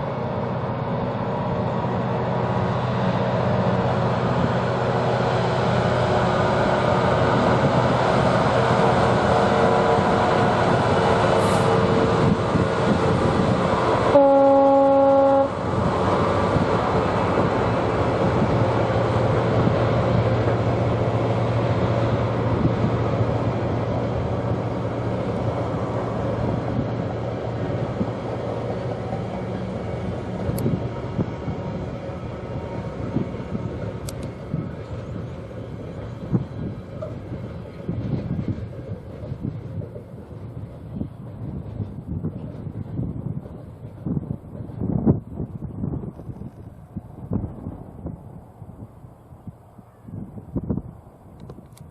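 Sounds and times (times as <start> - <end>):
freight train running past: 0.0 - 51.9
train horn blast: 13.7 - 15.7.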